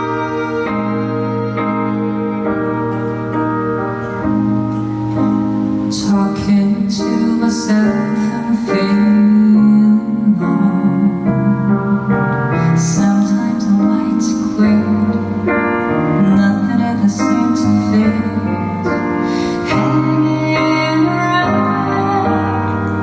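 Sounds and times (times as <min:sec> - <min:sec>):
slow piano ballad: 0:00.0 - 0:23.0
sustained melody line: 0:00.0 - 0:23.0.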